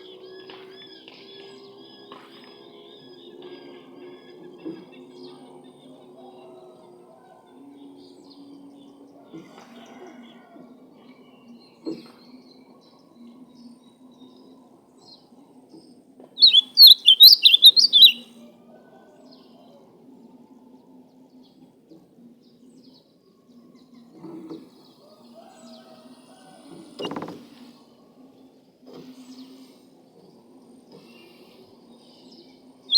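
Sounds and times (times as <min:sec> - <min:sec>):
bird singing warbling phrase: 0:16.4 - 0:18.2.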